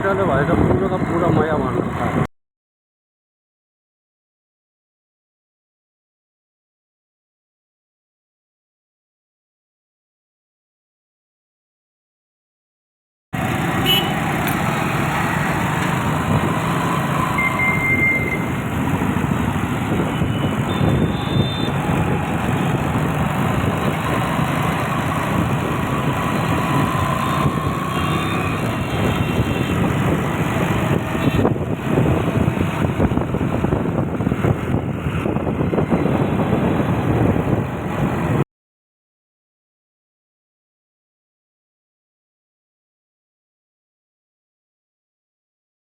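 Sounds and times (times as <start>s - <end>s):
scooter road and traffic noise: 0.0s - 2.3s, 13.4s - 38.4s
brief high tone: 17.3s - 18.6s, 20.2s - 21.8s.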